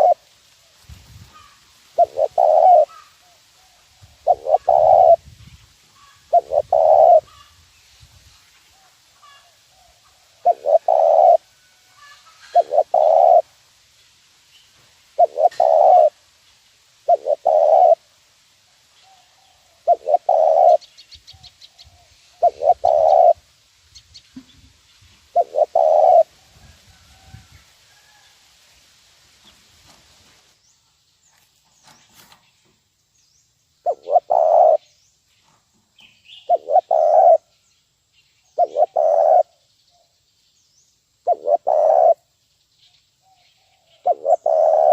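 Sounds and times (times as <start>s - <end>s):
dove cooing: 0.0s - 0.2s, 1.3s - 5.2s, 6.0s - 7.5s, 9.2s - 11.4s, 12.0s - 13.5s, 15.2s - 16.2s, 17.0s - 18.0s, 19.1s - 20.8s, 21.8s - 23.4s, 25.3s - 26.3s, 33.8s - 34.8s, 36.5s - 37.5s, 38.6s - 39.5s, 41.2s - 42.2s, 43.9s - 44.9s.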